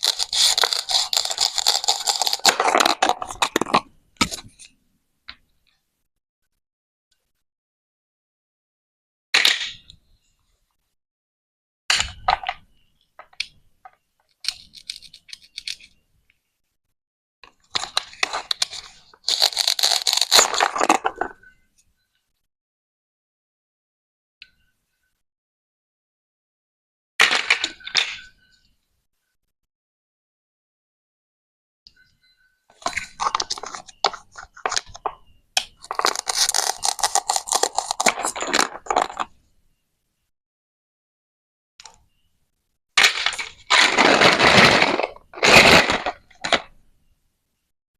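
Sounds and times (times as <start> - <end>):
toy knife cutting plastic: 0.0 - 4.6, 14.4 - 15.9, 17.7 - 21.2, 35.7 - 39.3.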